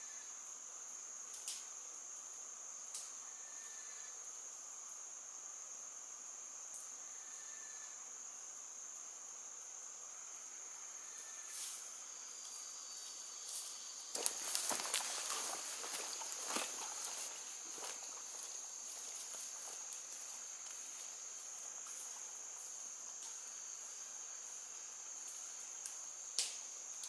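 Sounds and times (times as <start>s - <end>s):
insect buzzing: 10.0s - 26.3s
rustling and crackling: 13.5s - 22.3s.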